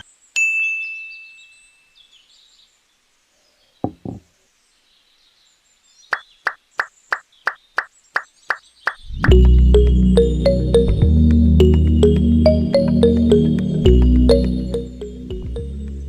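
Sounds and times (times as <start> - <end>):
soft knocks: 3.8 - 4.3
sharp evenly spaced taps: 6.1 - 9.9, 10.7 - 14.8.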